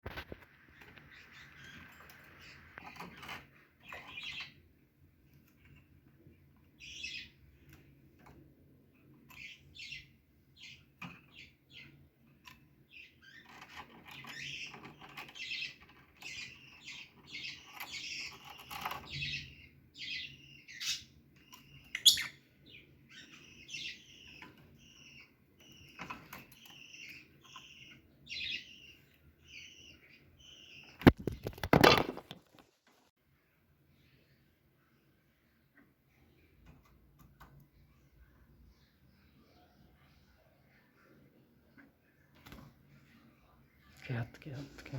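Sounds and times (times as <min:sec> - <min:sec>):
parrots chirping and tweeting: 0:00.1 - 0:04.7, 0:05.4 - 0:08.4, 0:09.0 - 0:32.1.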